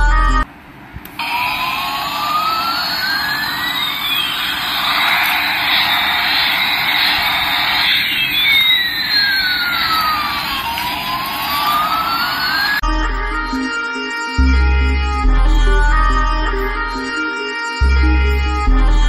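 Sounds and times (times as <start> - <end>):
toy jet sound effect: 1.2 - 12.8.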